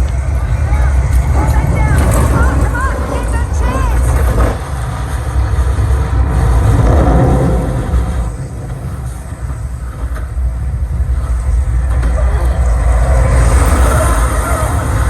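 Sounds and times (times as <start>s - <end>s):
deep bass rumble from soundbar: 0.4s - 15.0s.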